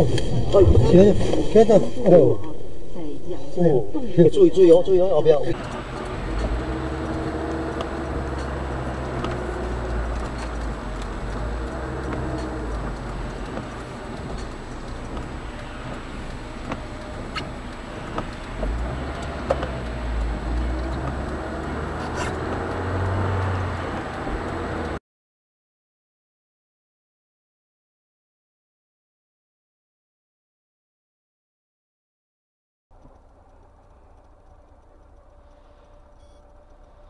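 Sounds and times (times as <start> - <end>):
car engine and road noise: 0.0 - 25.0, 32.9 - 37.0
light clicks: 33.0 - 37.0.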